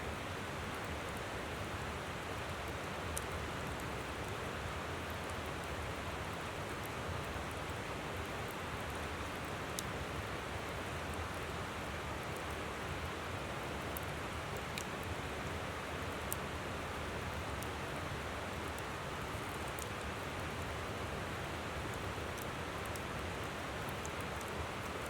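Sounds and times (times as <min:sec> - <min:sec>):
campfire crackling: 0:13.4 - 0:15.3, 0:16.0 - 0:25.0.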